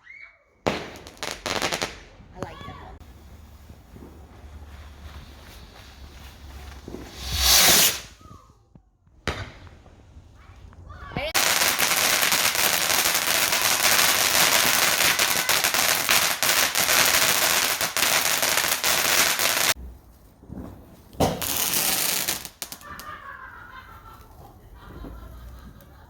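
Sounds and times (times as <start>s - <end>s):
firework crackling and popping: 0.7s - 8.4s, 11.3s - 19.8s, 21.1s - 23.1s.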